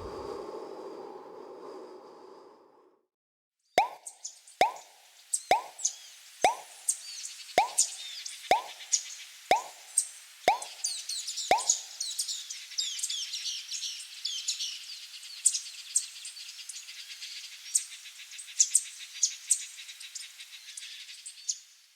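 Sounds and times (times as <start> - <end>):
plops: 3.8 - 6.8, 7.6 - 8.9, 9.5 - 12.0
small birds chirping: 3.8 - 21.8.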